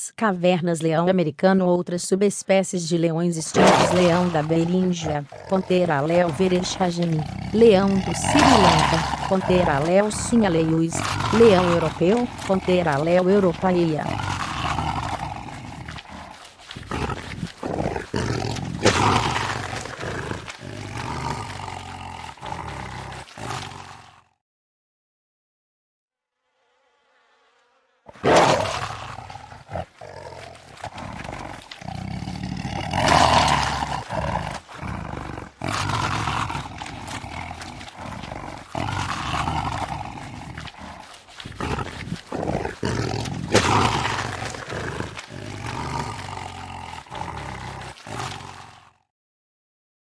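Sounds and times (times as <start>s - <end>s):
lion roaring and growling: 3.5s - 24.4s, 28.1s - 49.1s.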